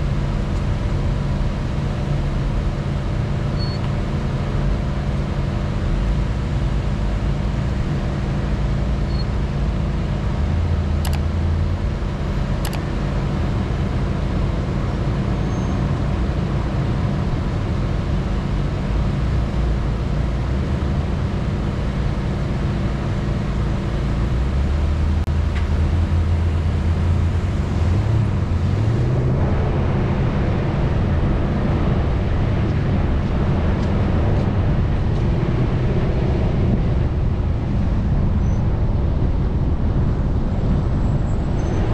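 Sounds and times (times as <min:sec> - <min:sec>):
off-road vehicle engine rumbling: 0:00.0 - 0:41.9
short sharp clicks: 0:11.0 - 0:11.3, 0:12.6 - 0:12.9.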